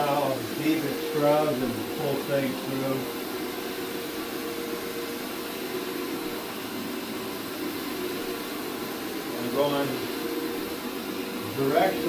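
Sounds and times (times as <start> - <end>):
carpet scrubbing machine humming: 0.0 - 12.0.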